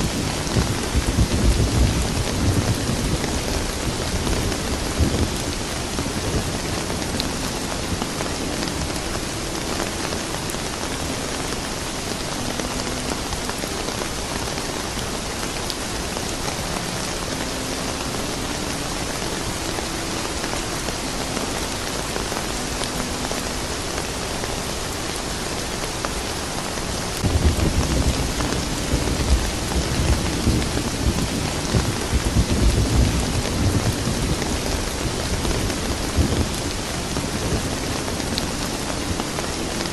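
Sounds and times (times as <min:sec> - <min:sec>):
low thunder rumble: 0:00.0 - 0:09.0, 0:27.2 - 0:39.2
steady rain falling: 0:00.0 - 0:39.9.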